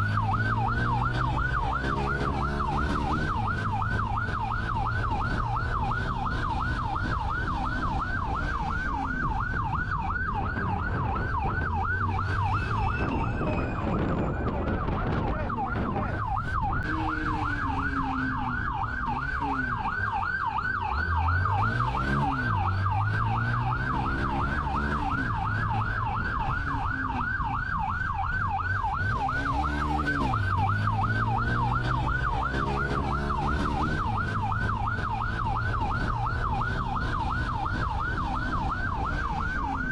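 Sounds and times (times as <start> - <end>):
vehicle engine revving: 0.0 - 9.4, 20.8 - 27.4, 28.8 - 39.9
police siren yelping: 0.0 - 39.9.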